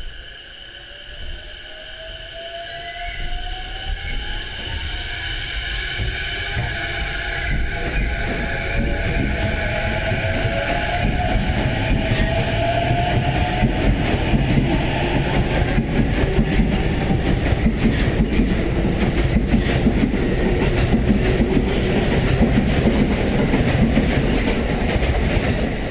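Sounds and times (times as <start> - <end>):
train wheels clicking over rail joints: 5.8 - 25.8.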